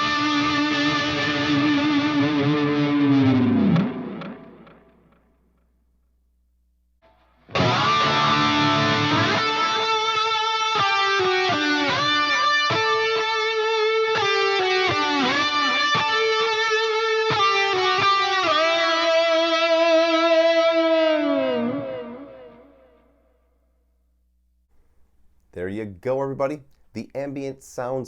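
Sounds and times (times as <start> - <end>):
electric guitar notes with bends: 0.0 - 5.2, 7.1 - 23.3.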